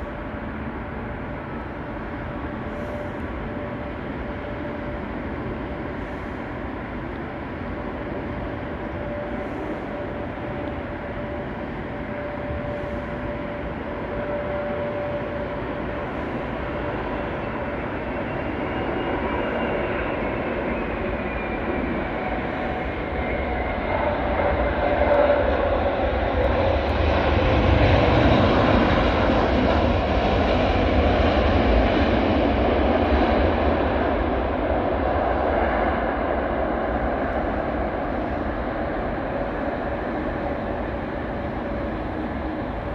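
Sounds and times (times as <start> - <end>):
jet engines with whine: 0.0 - 42.9.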